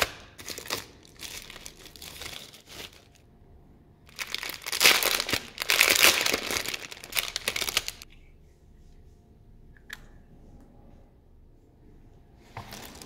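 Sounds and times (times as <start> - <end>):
packaging crinkling: 0.0 - 3.2, 4.1 - 8.0, 12.7 - 13.0.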